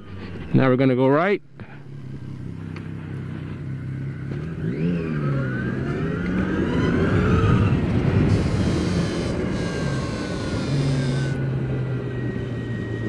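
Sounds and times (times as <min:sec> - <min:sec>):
electric motorcycle motor whining: 0:01.8 - 0:13.0
wind noise: 0:06.6 - 0:13.0.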